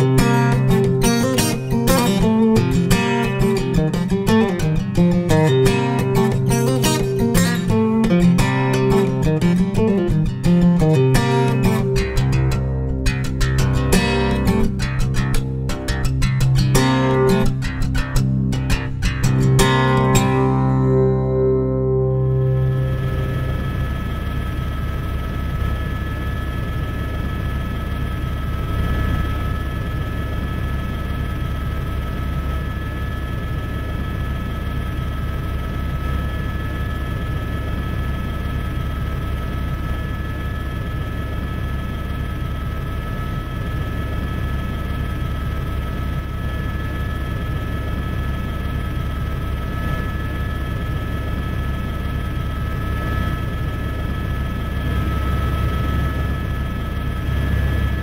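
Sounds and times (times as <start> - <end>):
helicopter rotor and engine drone: 0.0 - 58.0
high whine: 0.0 - 58.0.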